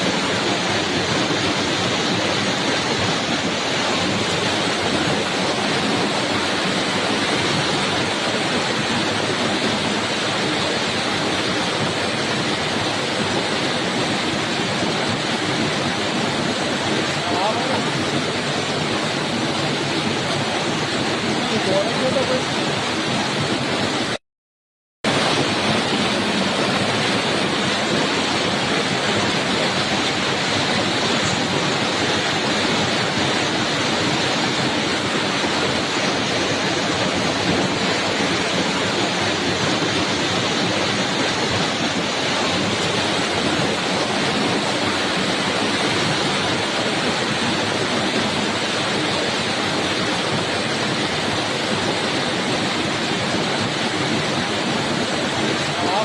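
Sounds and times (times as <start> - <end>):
heavy rain falling: 0.0 - 24.2, 25.0 - 56.0.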